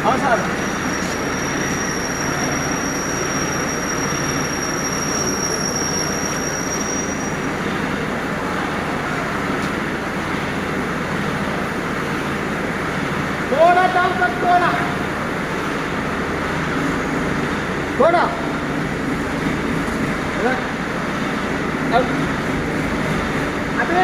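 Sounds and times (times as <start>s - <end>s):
high-pitched whine: 0.0s - 9.3s
heavy machinery running: 0.0s - 24.0s.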